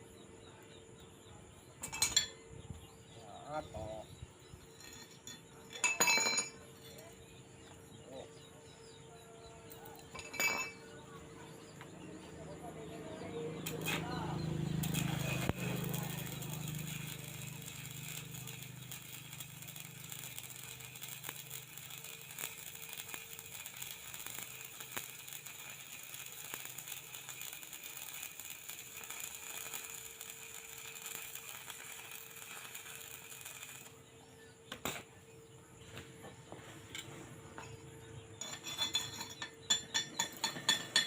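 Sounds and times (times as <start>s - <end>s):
arc welding crackling hiss: 13.5s - 34.0s.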